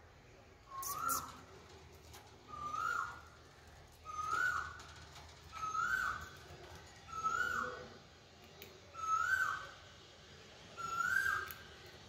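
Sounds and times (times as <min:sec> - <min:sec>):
caged bird whistled call: 0:00.7 - 0:01.5, 0:02.5 - 0:03.4, 0:04.0 - 0:04.9, 0:05.5 - 0:06.4, 0:07.1 - 0:08.0, 0:08.9 - 0:09.8, 0:10.7 - 0:11.7.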